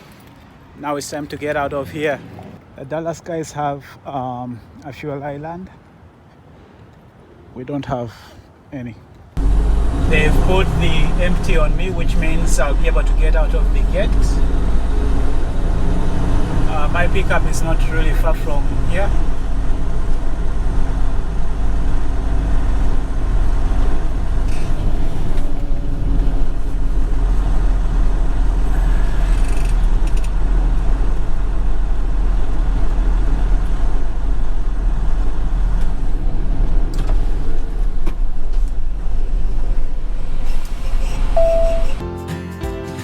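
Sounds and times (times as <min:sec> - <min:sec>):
truck diesel engine rumble: 0:09.4 - 0:42.0
steady tone: 0:41.4 - 0:42.0.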